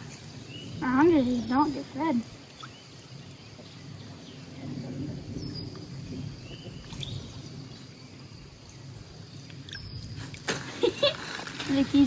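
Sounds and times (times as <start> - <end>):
faint bird chirps: 0.0 - 7.9
low outdoor rumble: 0.0 - 10.2.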